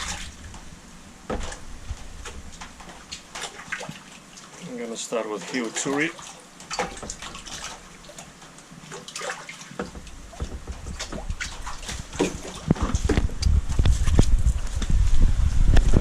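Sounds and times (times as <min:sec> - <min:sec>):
low rumble: 0:00.0 - 0:03.0, 0:10.0 - 0:16.0
water splashing in a tub: 0:00.0 - 0:14.9.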